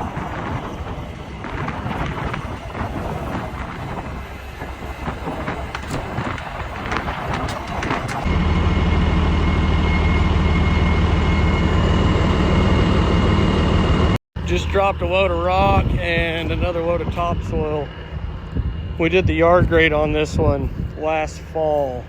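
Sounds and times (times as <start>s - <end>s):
heavy engine drone: 0.0s - 22.0s
rough clattering and knocks: 5.0s - 8.3s.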